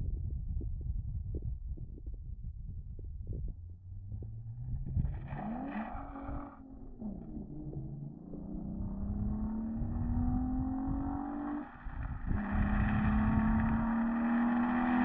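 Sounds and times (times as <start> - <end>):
car engine accelerating: 3.7 - 15.0.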